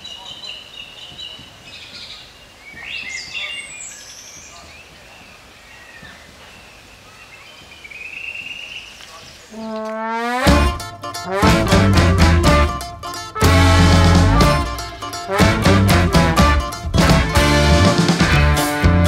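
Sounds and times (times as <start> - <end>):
birds chirping and singing: 0.0 - 9.8
held musical note: 9.6 - 19.0.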